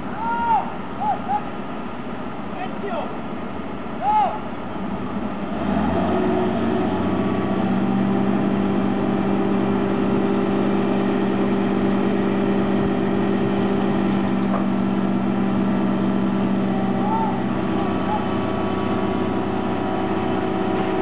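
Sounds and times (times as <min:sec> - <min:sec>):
heavy vehicle engine running: 0:00.0 - 0:21.0.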